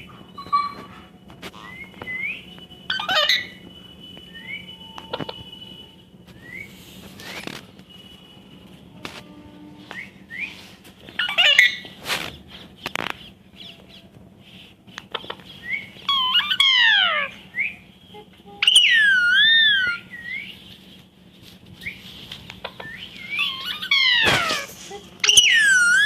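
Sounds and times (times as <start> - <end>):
parrot long wavering whistle: 0.3 - 8.4, 9.8 - 11.8, 15.5 - 20.7, 22.8 - 26.0
parrot falling calls: 22.8 - 26.0.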